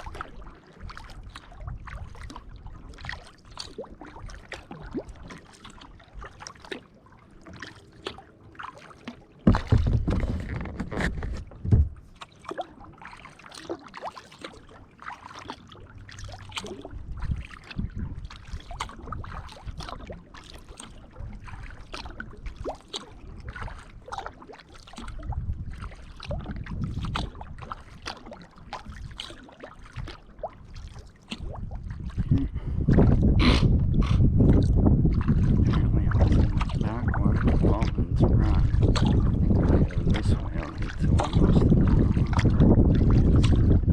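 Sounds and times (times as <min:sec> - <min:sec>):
kayak paddle strokes in water: 0:00.0 - 0:43.9.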